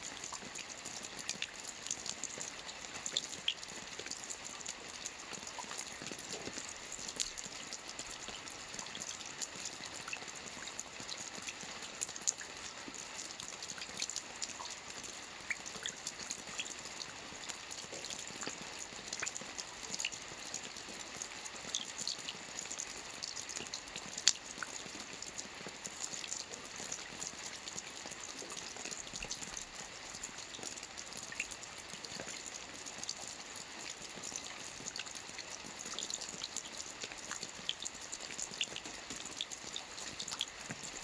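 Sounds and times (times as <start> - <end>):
soft rain on a roof: 0.0 - 41.0.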